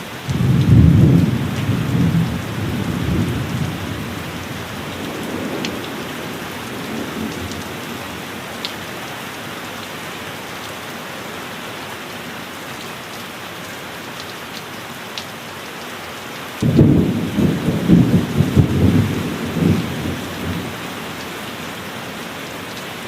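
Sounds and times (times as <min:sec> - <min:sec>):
heavy rain falling: 0:00.0 - 0:23.0
thunder clap rumbling: 0:00.3 - 0:08.4, 0:16.6 - 0:21.2.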